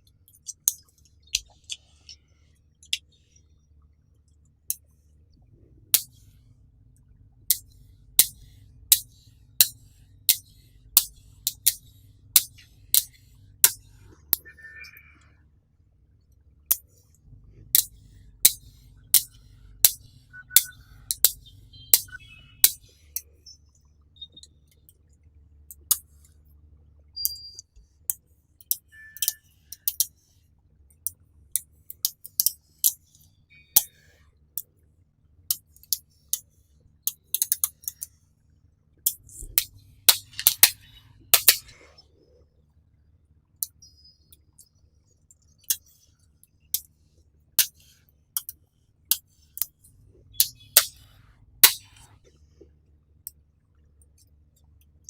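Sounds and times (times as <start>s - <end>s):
magnetic metal balls clicking: 0.0s - 3.3s, 5.9s - 15.0s, 16.7s - 25.0s, 27.2s - 30.2s, 31.0s - 34.7s, 35.5s - 36.4s, 37.0s - 38.2s, 39.0s - 42.0s, 47.6s - 52.2s.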